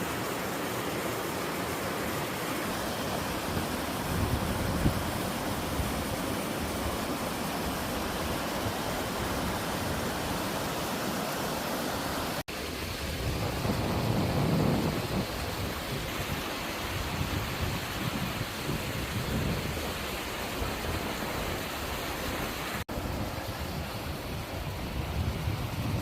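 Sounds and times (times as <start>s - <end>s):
waterfall rushing over rock: 0.0s - 26.0s.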